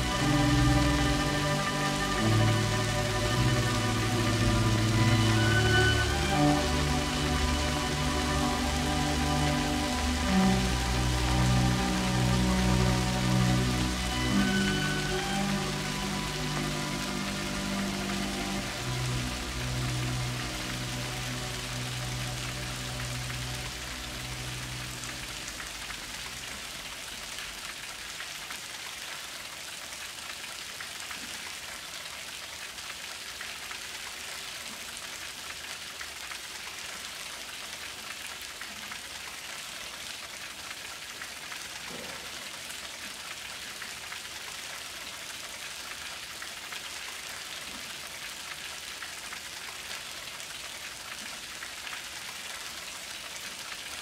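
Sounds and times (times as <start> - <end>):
low musical tone: 0.0 - 26.8
steady rain falling: 0.0 - 54.0.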